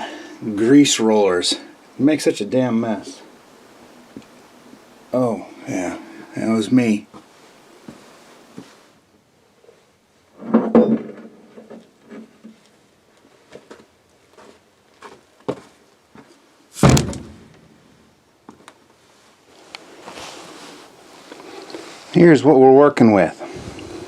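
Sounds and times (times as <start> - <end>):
metal clanks and knocks: 16.8 - 17.6
heavy thunk: 16.8 - 17.8.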